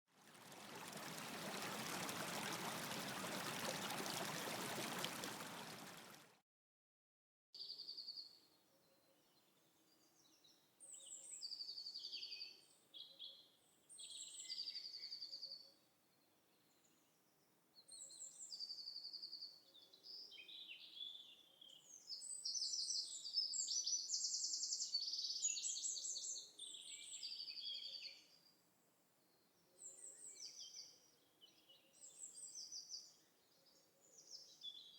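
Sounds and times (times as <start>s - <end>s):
songbirds singing: 29.2s - 34.9s.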